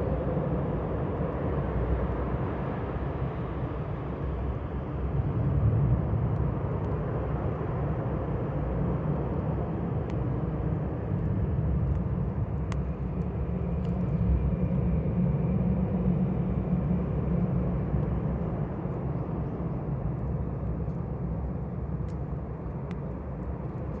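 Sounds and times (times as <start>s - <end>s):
campfire crackling and popping: 6.2s - 24.0s.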